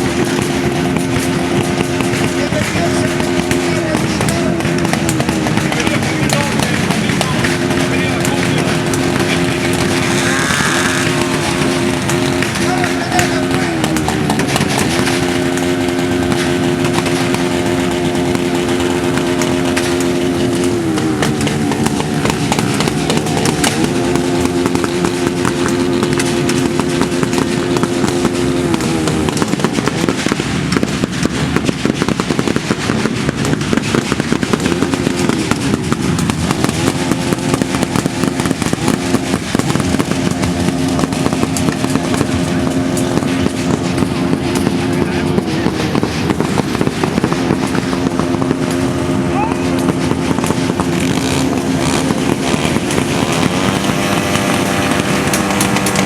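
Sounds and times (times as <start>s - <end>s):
crackle of pops: 0.0s - 56.0s
motorcycle engines revving: 0.0s - 56.0s.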